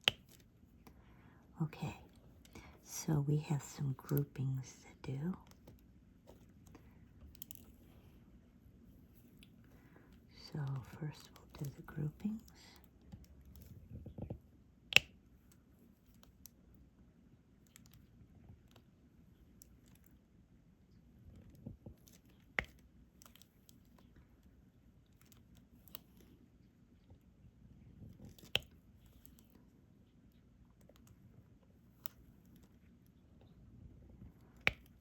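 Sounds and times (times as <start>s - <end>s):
small plastic clicks and taps: 0.0s - 1.0s, 13.0s - 16.6s, 21.4s - 24.2s, 28.2s - 29.6s, 34.4s - 35.0s.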